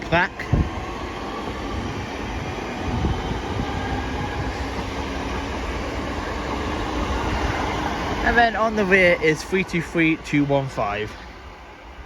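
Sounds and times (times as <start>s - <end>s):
train wheel and traction noise: 0.0s - 12.0s.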